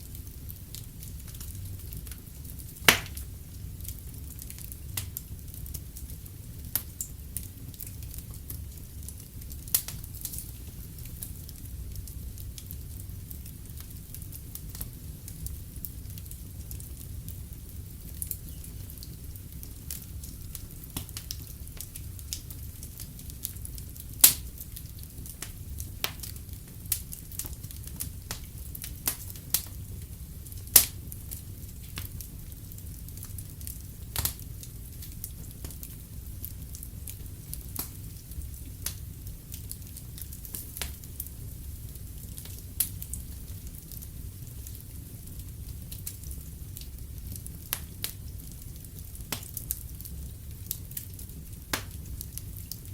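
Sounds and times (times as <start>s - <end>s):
wood fire crackling: 0.0s - 52.9s
sharp pops and snaps: 2.9s - 3.2s, 24.2s - 24.5s, 30.7s - 31.0s, 37.8s - 38.0s, 49.3s - 49.7s, 51.7s - 52.1s.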